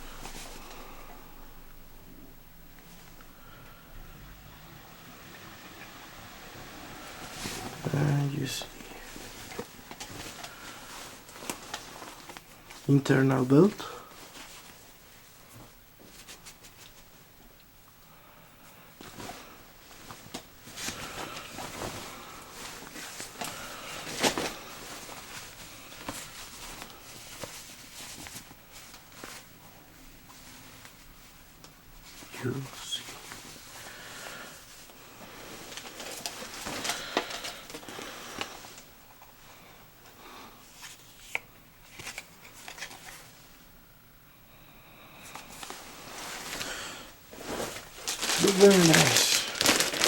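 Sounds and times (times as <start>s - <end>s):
fabric rustling: 6.7s - 17.3s, 18.9s - 39.3s, 45.3s - 50.0s.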